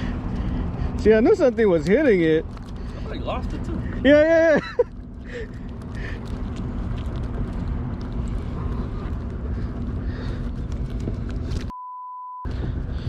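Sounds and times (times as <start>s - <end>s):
boat engine rumbling: 0.0s - 11.7s, 12.5s - 13.0s
pure beep: 11.7s - 12.5s.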